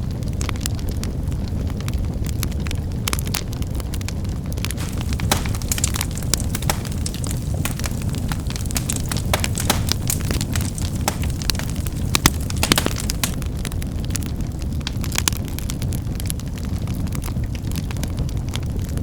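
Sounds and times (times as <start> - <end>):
wood fire crackling and popping: 4.6 - 18.0.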